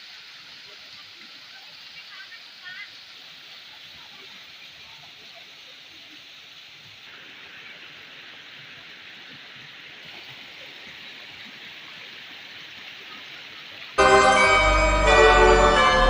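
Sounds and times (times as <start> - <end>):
waterfall rushing: 14.0 - 16.0.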